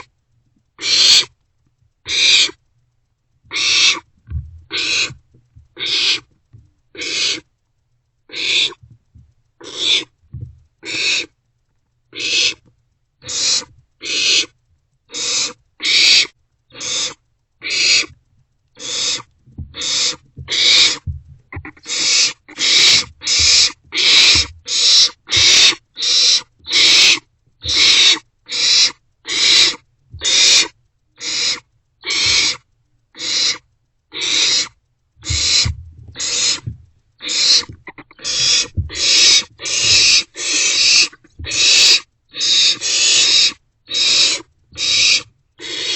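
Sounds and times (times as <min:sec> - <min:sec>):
owlets hissing begging calls: 0:00.8 - 0:01.3, 0:02.1 - 0:02.6, 0:03.5 - 0:04.1, 0:04.7 - 0:05.2, 0:05.8 - 0:06.3, 0:07.0 - 0:07.4, 0:08.3 - 0:08.8, 0:10.8 - 0:11.3, 0:12.2 - 0:12.6, 0:13.2 - 0:14.5, 0:15.1 - 0:18.1, 0:18.8 - 0:21.1, 0:21.7 - 0:32.6, 0:33.2 - 0:33.6, 0:34.2 - 0:45.9.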